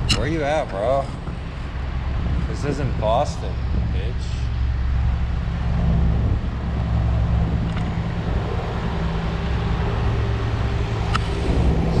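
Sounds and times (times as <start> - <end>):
vehicle engine running: 0.0 - 12.0
wind on microphone: 0.0 - 12.0
sharp click: 11.1 - 11.3.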